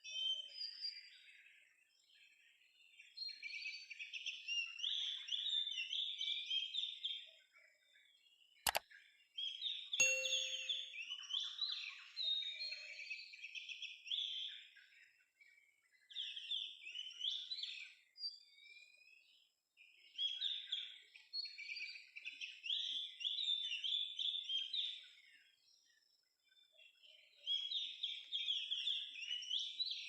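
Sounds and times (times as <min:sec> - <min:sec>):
bird song whistles and chatter: 0:16.0 - 0:19.2, 0:20.0 - 0:25.9, 0:26.6 - 0:30.0.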